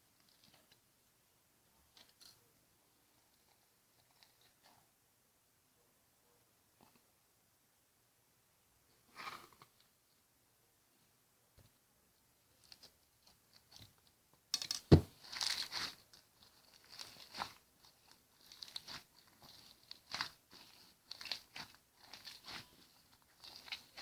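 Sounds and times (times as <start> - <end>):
slime squishing and crackling: 15.2 - 24.0.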